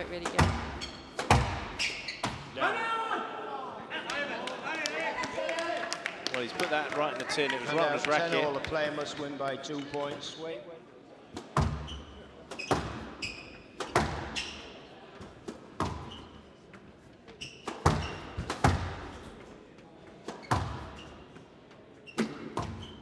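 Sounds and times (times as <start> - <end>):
squash ball cracking off walls: 0.0 - 2.5, 11.4 - 14.6, 17.6 - 19.3, 20.3 - 21.0
shoes squeaking on court floor: 0.0 - 2.6, 11.4 - 23.0.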